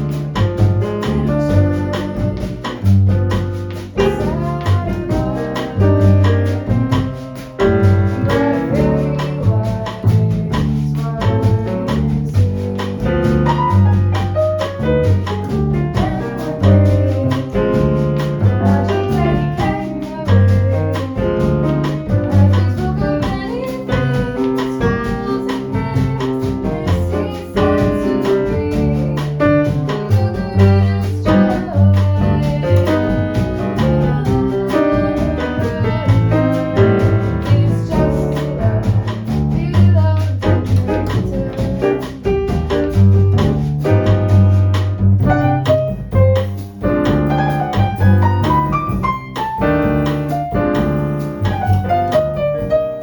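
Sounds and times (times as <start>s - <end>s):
bass line: 0.0s - 53.0s
drums: 0.0s - 53.0s
piano: 0.0s - 53.0s.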